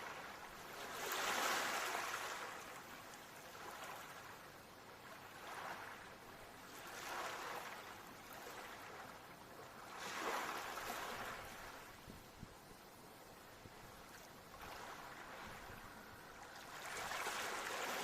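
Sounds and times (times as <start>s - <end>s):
ocean waves washing ashore: 0.0s - 18.0s.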